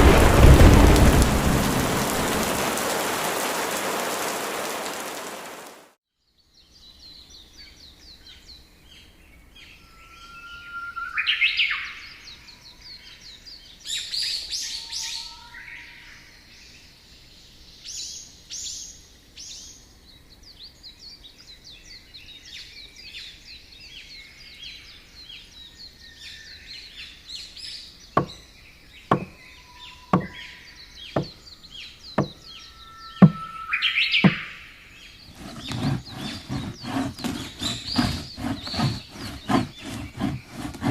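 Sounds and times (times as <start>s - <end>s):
wild birds chirping and singing: 6.3s - 40.9s
sharp knocks: 28.2s - 28.4s, 29.1s - 29.4s, 30.2s - 30.4s, 31.2s - 31.4s, 32.2s - 32.4s, 33.2s - 33.5s, 34.2s - 34.5s.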